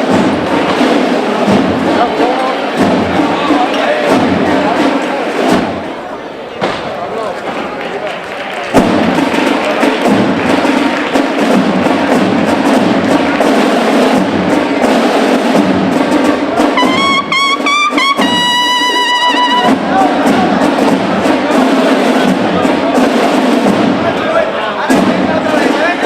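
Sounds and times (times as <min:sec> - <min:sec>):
brass band playing march: 0:00.0 - 0:06.0, 0:08.6 - 0:26.0
high held brass note: 0:16.8 - 0:19.8.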